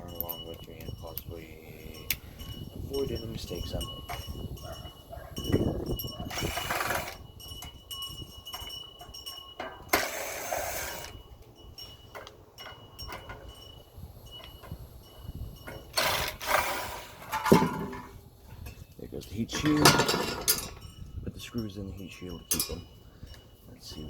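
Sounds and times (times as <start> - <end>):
tools clicking and clinking: 0.0 - 3.4, 4.0 - 16.6, 19.5 - 20.9, 22.2 - 23.4.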